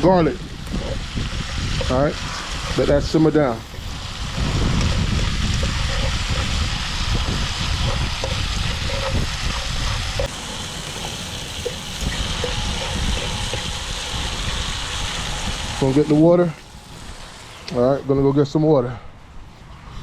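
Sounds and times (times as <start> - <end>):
vegetables sizzling in oil: 0.0 - 17.9
low rumble: 0.0 - 18.4.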